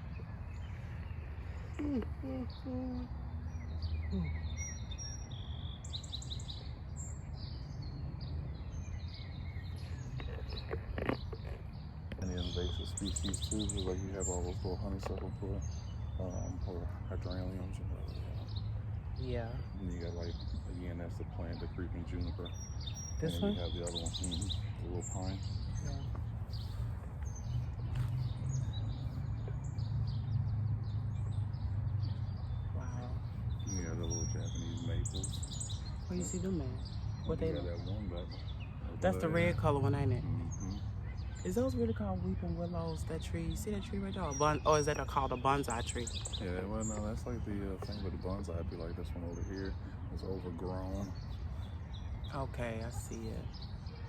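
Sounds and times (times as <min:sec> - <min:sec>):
bird trill: 0:00.0 - 0:18.7
birds chirping and singing: 0:00.0 - 0:54.0.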